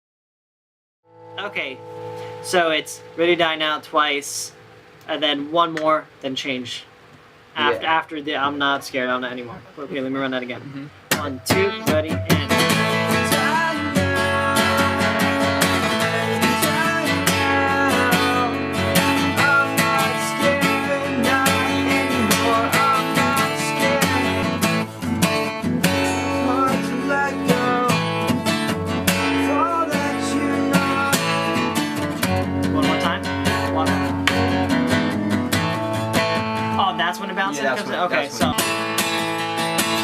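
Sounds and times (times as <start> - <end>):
acoustic guitar strumming: 1.1 - 9.7, 10.9 - 40.0
person singing: 11.2 - 24.6, 25.3 - 28.4, 29.3 - 31.7, 36.8 - 38.7.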